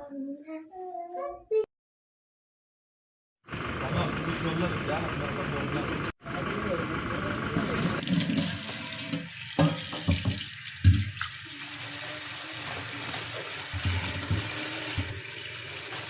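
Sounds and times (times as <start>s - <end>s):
water running from tap: 7.6s - 16.0s.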